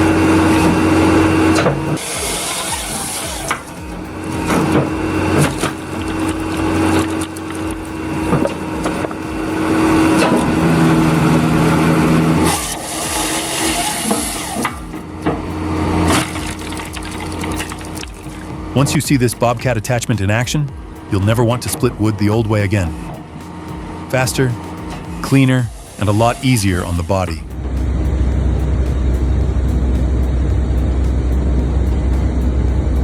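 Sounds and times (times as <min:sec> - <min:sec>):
hydraulic machine tone: 0:00.0 - 0:33.0
machine engine running: 0:00.0 - 0:33.0.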